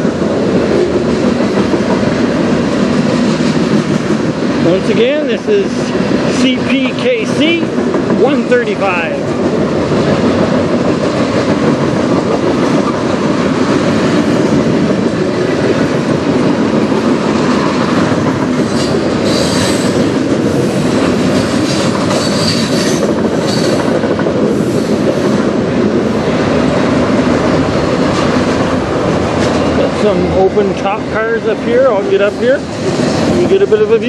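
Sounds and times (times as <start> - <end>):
steel wheels on rails: 0.0 - 34.0
high-pitched wheel squeal: 18.8 - 20.0, 22.2 - 23.8.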